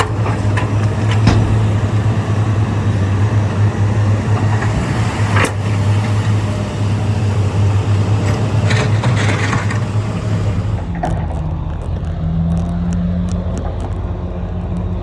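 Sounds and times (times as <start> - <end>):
metal clank: 0.0 - 4.7
metallic clattering: 0.0 - 4.7
heavy diesel engine hum: 0.0 - 15.0.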